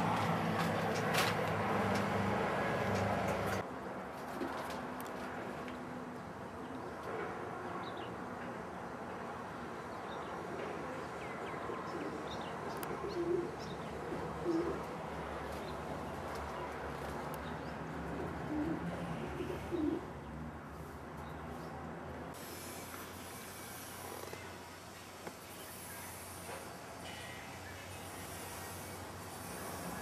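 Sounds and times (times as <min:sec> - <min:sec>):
steady background noise: 0:00.0 - 0:30.0
pigeons cooing: 0:11.7 - 0:14.9, 0:18.1 - 0:20.1.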